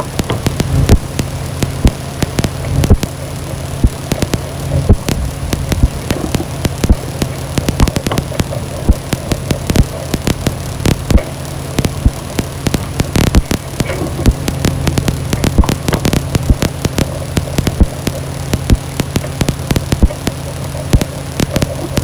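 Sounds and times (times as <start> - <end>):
dense irregular clicks: 0.0 - 22.0
low droning hum: 0.0 - 22.0.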